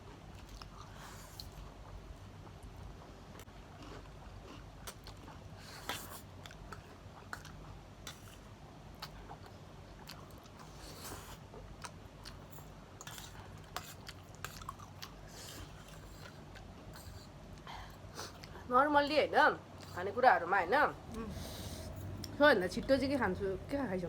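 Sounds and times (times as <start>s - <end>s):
people chewing crunchy food: 0.0s - 18.7s.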